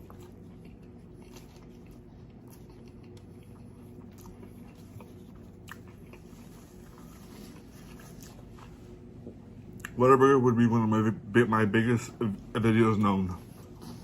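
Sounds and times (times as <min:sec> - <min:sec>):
person chewing food: 0:00.0 - 0:10.0.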